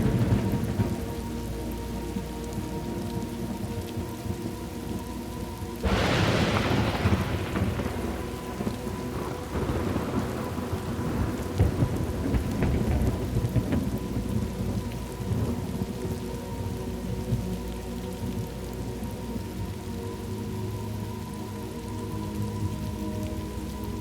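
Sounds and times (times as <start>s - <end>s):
thunderclap rumbling: 0.0s - 1.4s, 5.8s - 16.4s
steady rain: 0.0s - 24.0s.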